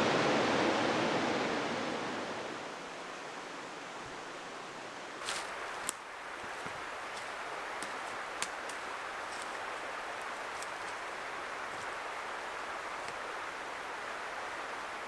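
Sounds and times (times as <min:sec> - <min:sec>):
flowing water rushing: 0:05.1 - 0:15.0.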